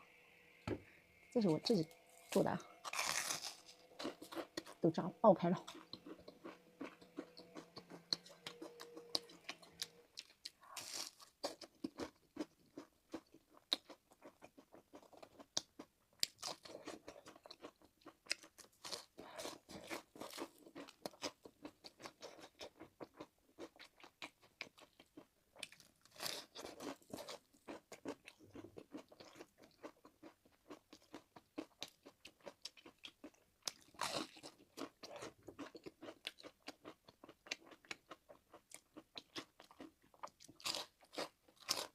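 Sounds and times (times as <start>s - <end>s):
crunching bites: 2.8s - 4.8s.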